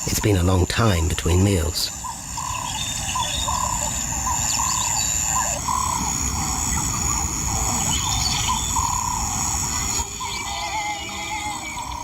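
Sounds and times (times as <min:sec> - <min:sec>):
high insect drone: 0:00.0 - 0:12.0
bird whistling notes: 0:02.0 - 0:12.0.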